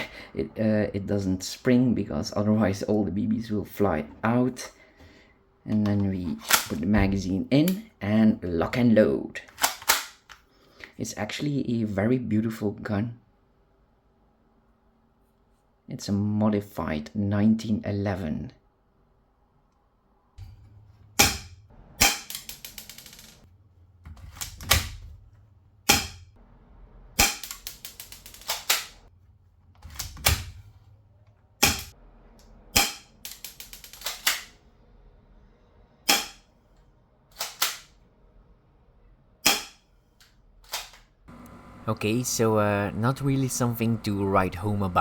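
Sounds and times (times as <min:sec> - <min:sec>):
pistol cocking clicks: 0:27.2 - 0:29.0, 0:32.8 - 0:34.5.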